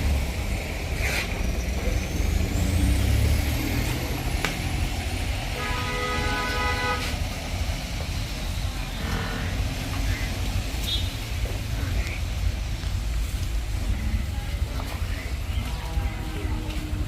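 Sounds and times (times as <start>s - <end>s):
steady low rumble: 0.0s - 5.8s, 6.6s - 17.0s
vehicle horn: 5.5s - 7.2s.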